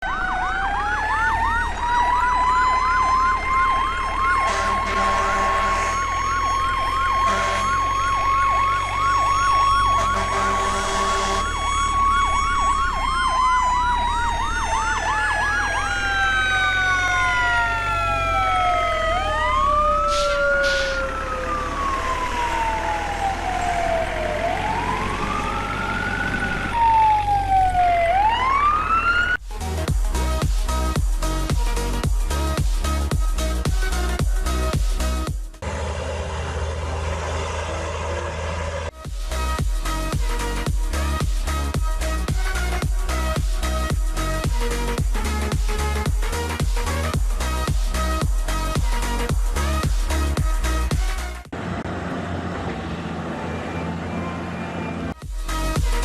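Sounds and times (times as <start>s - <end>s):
emergency sirens yelping and wailing: 0.0s - 56.0s
low horn tone: 4.4s - 8.1s, 9.9s - 11.6s.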